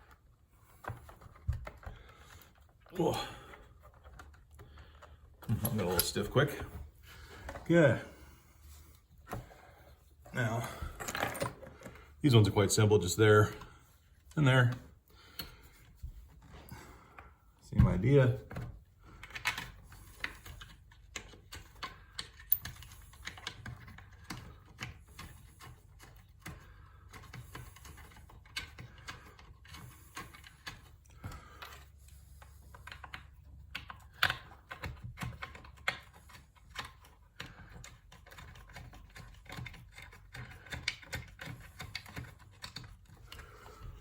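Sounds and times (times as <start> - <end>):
hand tools clicking and tapping: 17.8 - 44.0
small metal parts clicking: 19.2 - 30.9.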